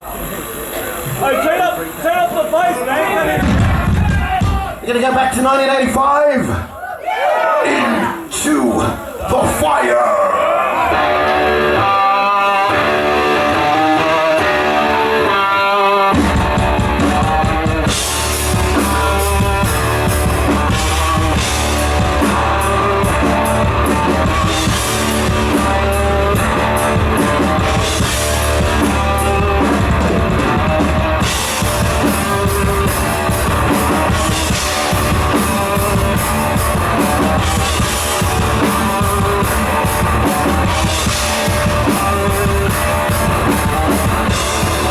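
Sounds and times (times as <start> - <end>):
drums: 0.0 - 44.9
bass guitar: 3.3 - 4.8, 10.8 - 44.9
electric guitar riff: 10.4 - 44.9.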